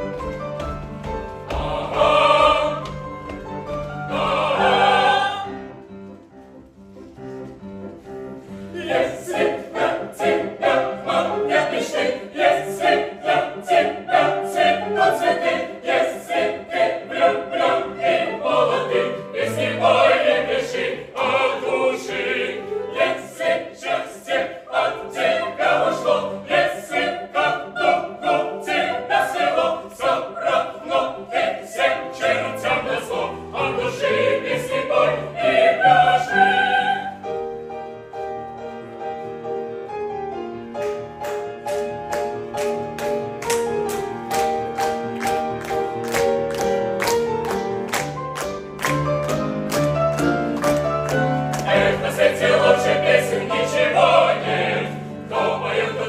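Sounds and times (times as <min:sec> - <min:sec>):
instrumental accompaniment: 0:00.0 - 0:56.0
operatic choir and soloists singing: 0:01.1 - 0:05.9, 0:08.4 - 0:37.7, 0:50.2 - 0:56.0.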